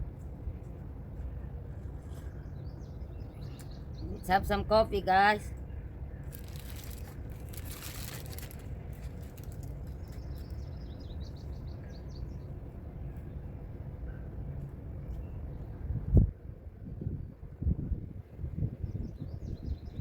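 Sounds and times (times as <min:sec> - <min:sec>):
steady low rumble: 0:00.0 - 0:20.0
songbird chirping: 0:01.8 - 0:08.6, 0:09.3 - 0:12.8.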